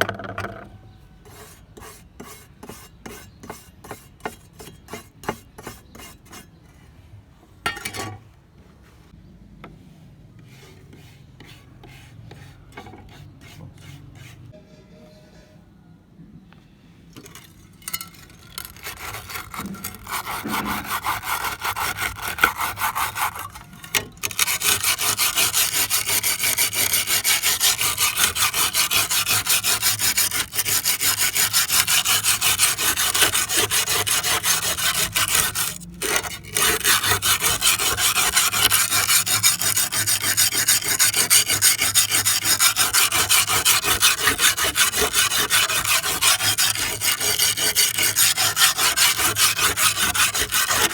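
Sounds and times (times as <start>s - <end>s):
abrasive rasping on metal trowel: 17.2s - 50.9s.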